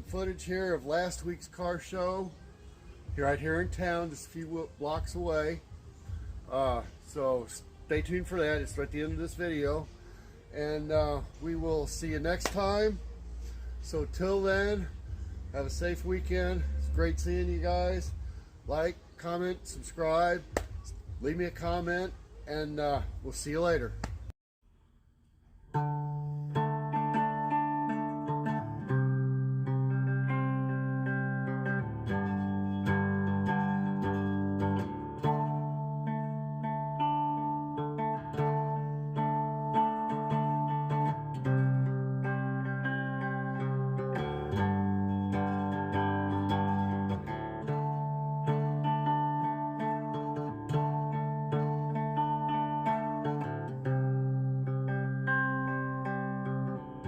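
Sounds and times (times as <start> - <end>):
acoustic guitar strumming chords: 3.0 - 24.2, 25.7 - 57.0.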